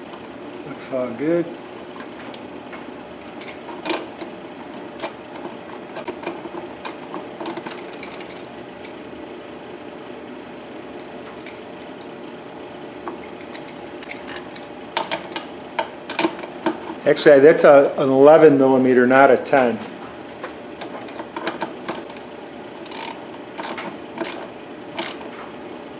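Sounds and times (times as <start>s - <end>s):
steady background hum: 0.0s - 25.9s
hand tools clicking on metal: 20.8s - 25.3s.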